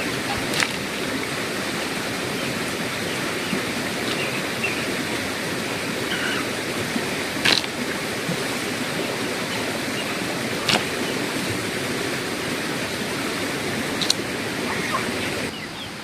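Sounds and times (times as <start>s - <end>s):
faint bird calls: 6.0s - 6.6s, 14.5s - 16.0s.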